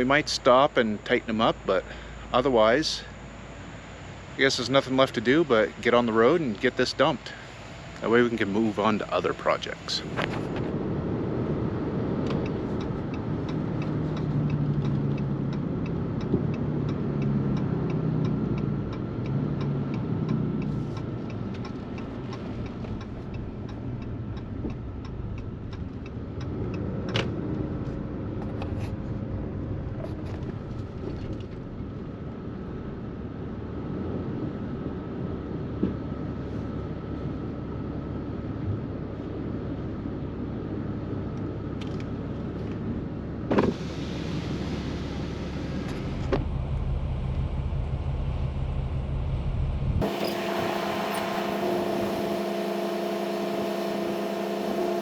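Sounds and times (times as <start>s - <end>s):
engine and road rumble: 0.0s - 55.0s
trailer clunk: 50.0s - 55.0s.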